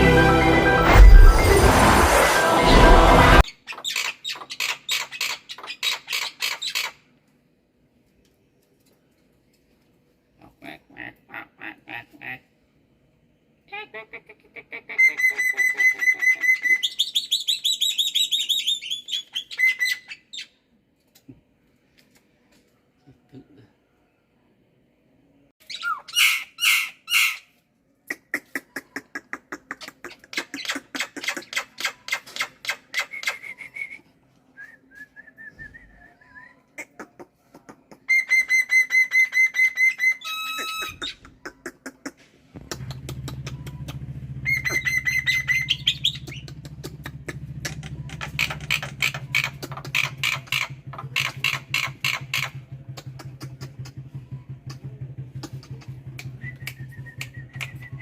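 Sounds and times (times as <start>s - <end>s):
starling singing: 43.7s - 52.7s.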